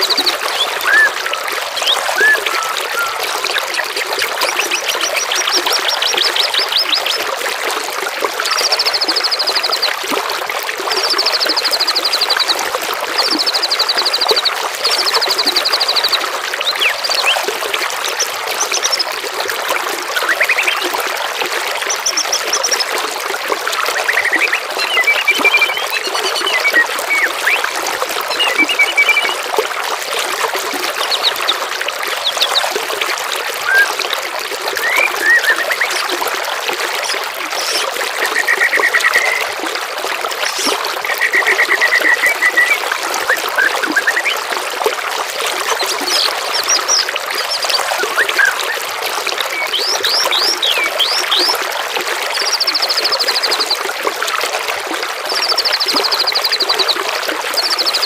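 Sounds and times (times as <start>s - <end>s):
songbird calls and trills: 0.0s - 7.2s, 13.2s - 17.4s, 23.9s - 27.6s, 28.3s - 29.4s, 37.0s - 39.4s, 49.4s - 51.6s
trickle of running water: 0.0s - 58.0s.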